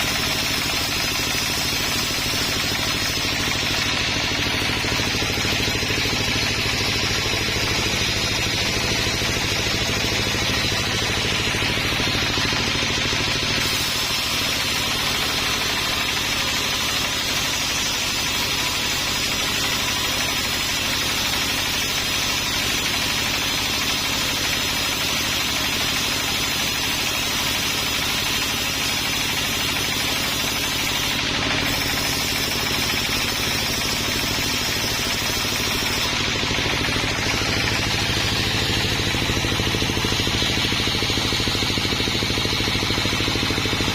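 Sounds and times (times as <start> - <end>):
dense mechanical din: 0.0 - 20.6, 29.5 - 43.9
sawmill engine running: 0.0 - 43.9.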